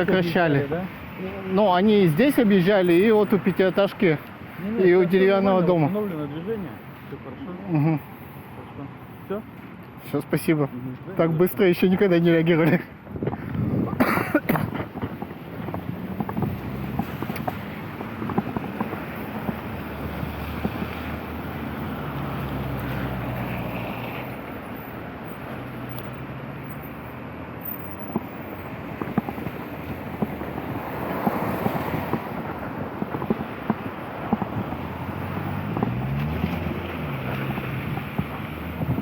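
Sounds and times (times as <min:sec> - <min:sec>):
vehicle engine humming: 0:10.8 - 0:39.0
wind on microphone: 0:13.0 - 0:14.0, 0:14.6 - 0:21.4, 0:28.1 - 0:36.0, 0:36.6 - 0:39.0.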